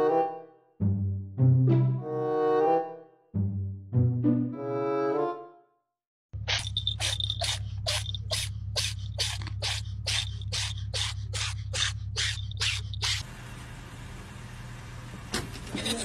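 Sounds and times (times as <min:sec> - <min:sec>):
small bell jingling: 0:06.5 - 0:08.5.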